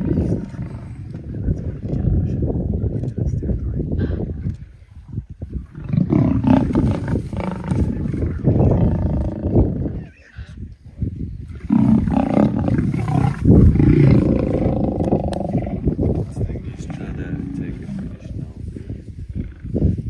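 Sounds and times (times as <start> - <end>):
lions roaring: 0.0 - 1.2, 5.7 - 9.8, 11.6 - 18.4.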